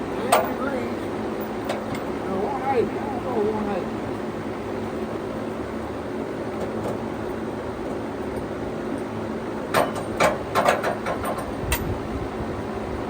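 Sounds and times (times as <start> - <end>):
sawmill engine running: 0.0 - 13.0
sharp knocks and clatters: 9.7 - 11.8.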